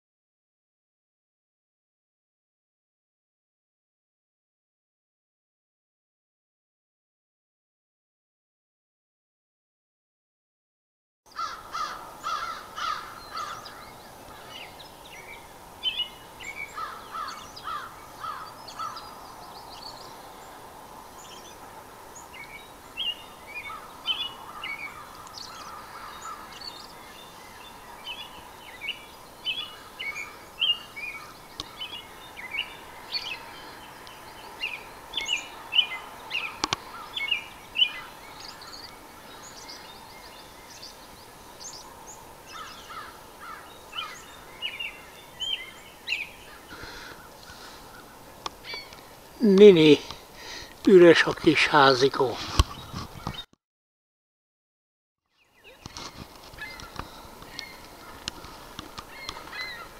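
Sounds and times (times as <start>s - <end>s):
birds chirping: 11.3s - 53.5s, 55.3s - 59.9s.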